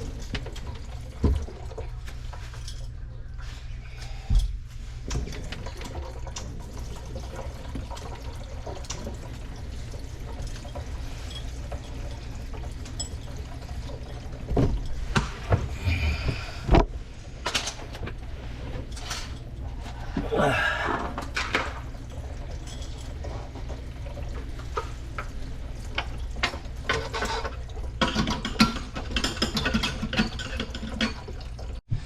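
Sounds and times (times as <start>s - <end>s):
faucet water running into sink: 5.0s - 16.6s, 17.2s - 31.8s
knocks and clunks: 14.5s - 17.0s.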